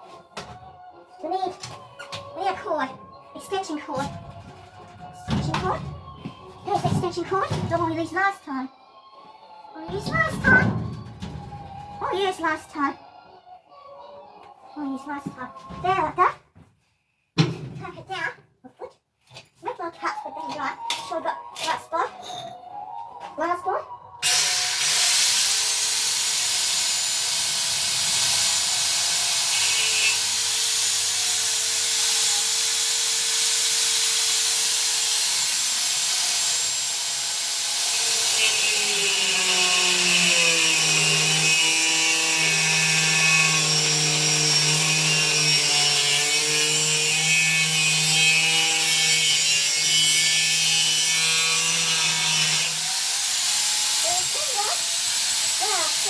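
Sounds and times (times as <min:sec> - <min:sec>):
angle grinder cutting steel: 0:24.2 - 0:56.0.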